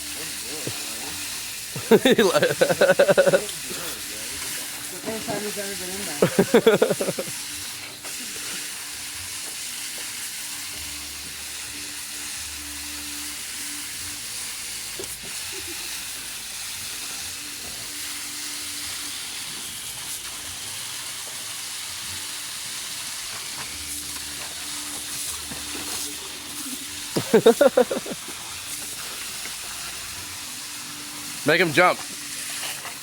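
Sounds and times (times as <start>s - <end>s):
steady hissing noise: 0.0s - 33.0s.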